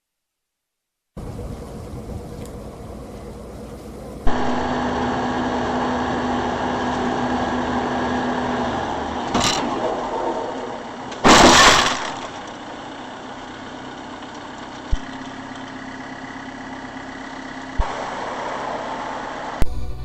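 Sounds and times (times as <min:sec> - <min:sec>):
low hum: 0:01.2 - 0:13.8, 0:14.8 - 0:20.0
vehicle engine and road noise: 0:01.2 - 0:20.0
sudden noisy burst: 0:04.3 - 0:07.6, 0:09.3 - 0:12.4, 0:17.8 - 0:20.0.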